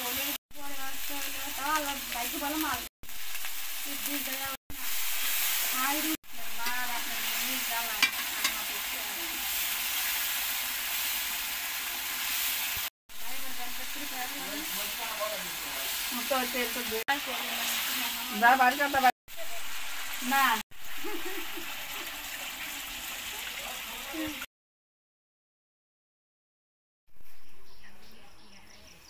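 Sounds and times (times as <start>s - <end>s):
onions sizzling in oil: 0.0s - 24.5s
spatula clacking on metal: 8.0s - 8.6s.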